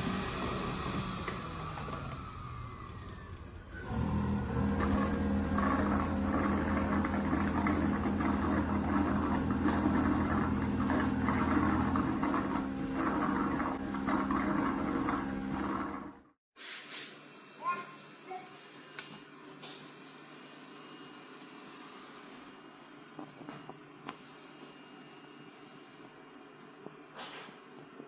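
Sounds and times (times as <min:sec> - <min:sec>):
robot vacuum motor humming: 0:00.0 - 0:16.1.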